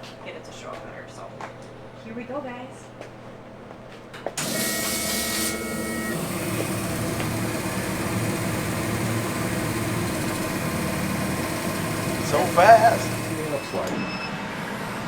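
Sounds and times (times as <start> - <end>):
laser cutter hiss and whine: 4.4 - 14.2
machine mechanical whir: 4.4 - 14.9.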